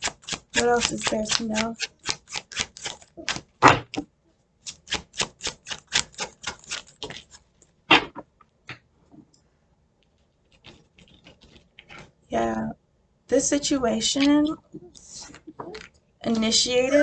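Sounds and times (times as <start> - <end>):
cards being shuffled: 0.0 - 4.0, 4.7 - 7.4, 10.5 - 12.1.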